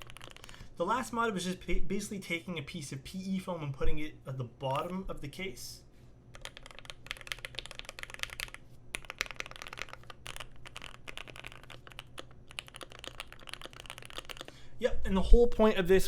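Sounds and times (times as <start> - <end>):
mechanical keyboard typing: 0.0 - 0.6, 6.3 - 14.5.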